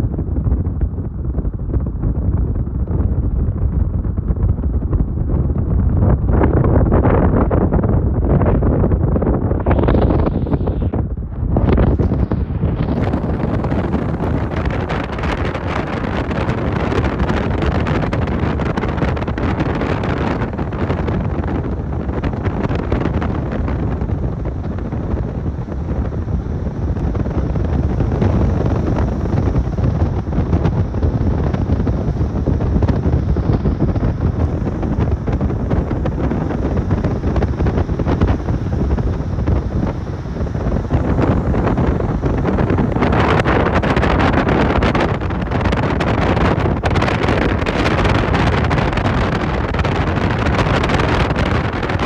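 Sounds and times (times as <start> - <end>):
wind buffeting microphone: 0.0 - 52.0.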